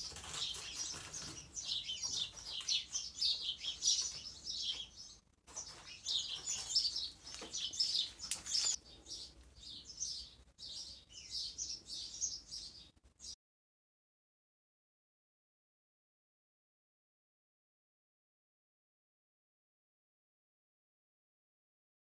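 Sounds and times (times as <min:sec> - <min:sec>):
small birds chirping: 0:00.0 - 0:13.4.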